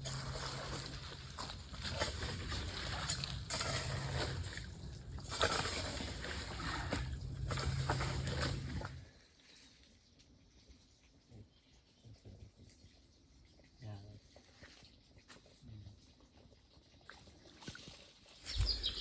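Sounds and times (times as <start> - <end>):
low water rumble: 0.0 - 9.2
stream water flowing and splashing: 0.0 - 9.8, 16.2 - 19.0.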